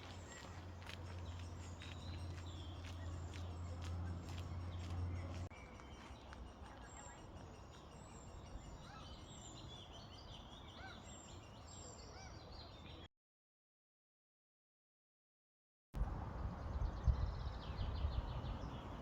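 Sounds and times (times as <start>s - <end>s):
small birds chirping: 0.0s - 13.1s.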